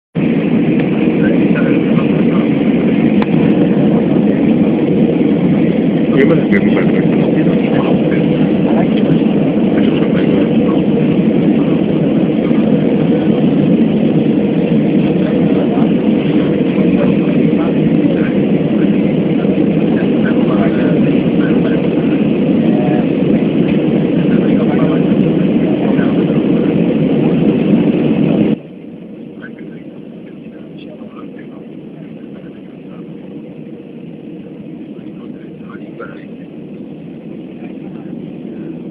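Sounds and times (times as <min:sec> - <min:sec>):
rushing air: 0:00.2 - 0:29.4
jet airliner cabin noise: 0:00.2 - 0:38.9.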